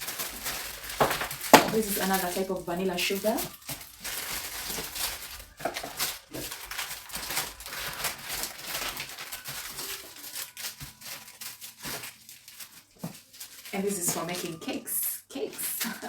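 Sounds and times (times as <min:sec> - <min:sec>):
packets crinkling and rustling: 0:00.0 - 0:16.0.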